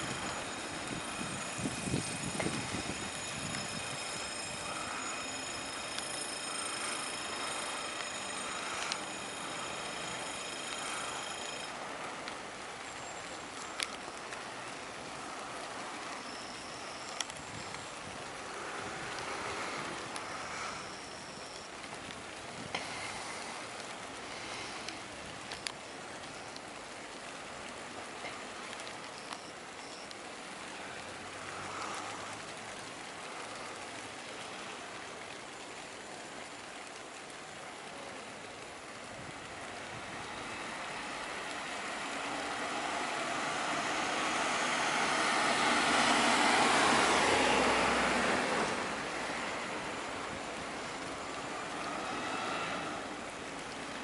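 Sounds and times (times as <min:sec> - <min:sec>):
train passing with rumble: 0:00.0 - 0:12.0.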